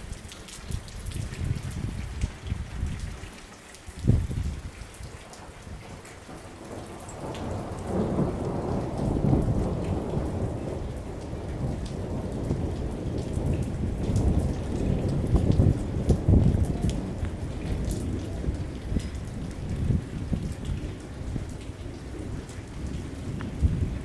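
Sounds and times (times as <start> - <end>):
raindrops ticking: 0.0 - 24.0
steady rain: 0.0 - 24.0
thunder rumbling: 5.7 - 24.0.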